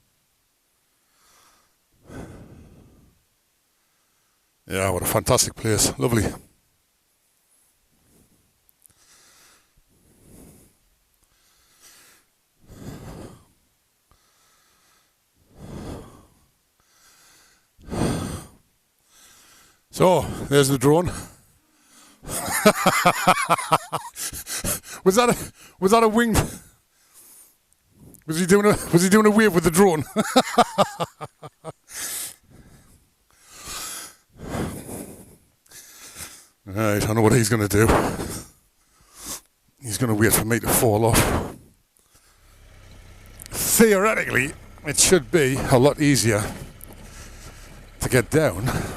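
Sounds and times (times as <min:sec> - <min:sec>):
person breathing hard: 0:01.0 - 0:04.5, 0:08.0 - 0:25.8, 0:26.4 - 0:28.3, 0:30.4 - 0:36.6, 0:38.1 - 0:39.5, 0:41.4 - 0:42.9, 0:46.3 - 0:48.9
man laughing: 0:22.2 - 0:25.0, 0:28.5 - 0:31.9, 0:43.5 - 0:46.6, 0:48.0 - 0:48.9.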